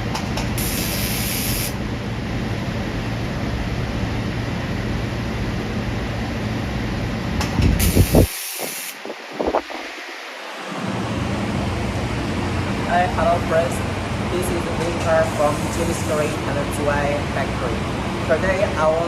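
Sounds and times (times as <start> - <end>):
welding machine hum and hiss: 0.0 - 3.4, 6.8 - 9.2
sharp gas hissing burst: 0.6 - 1.8, 7.8 - 9.0.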